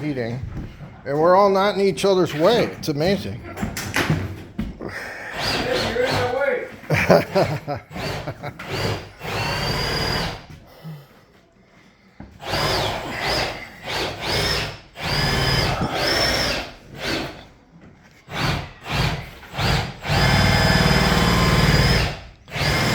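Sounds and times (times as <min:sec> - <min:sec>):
power drill whining: 0:02.1 - 0:02.8, 0:05.1 - 0:10.6, 0:12.4 - 0:22.9.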